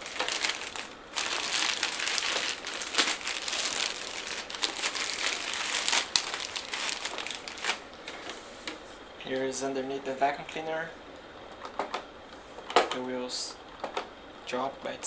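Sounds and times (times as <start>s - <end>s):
packaging crinkling: 0.0s - 8.8s
small clicks and crackles: 0.0s - 8.8s.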